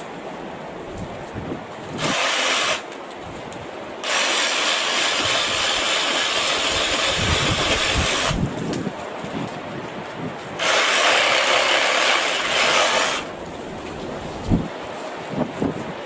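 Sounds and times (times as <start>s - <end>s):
cordless saw cutting branches: 1.9s - 3.0s, 4.0s - 8.9s, 10.5s - 13.7s.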